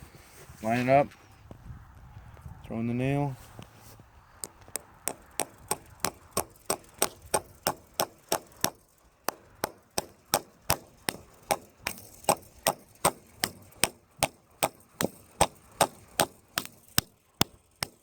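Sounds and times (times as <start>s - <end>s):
hammer striking nail into wood: 4.4s - 18.0s.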